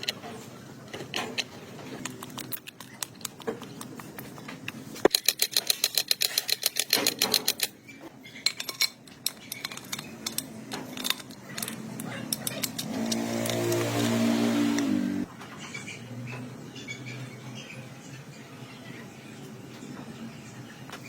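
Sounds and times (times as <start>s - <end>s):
metal tools clinking: 8.3s - 14.1s.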